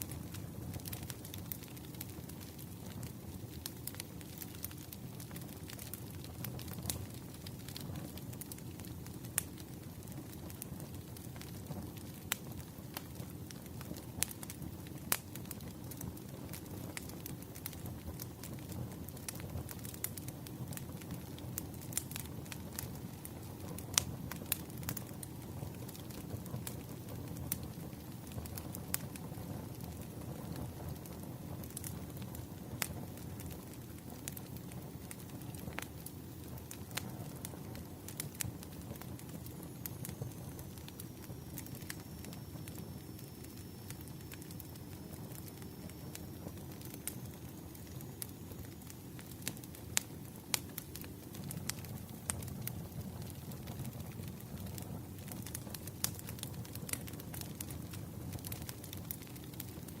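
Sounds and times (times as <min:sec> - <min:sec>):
wood fire crackling: 0:00.0 - 1:00.0.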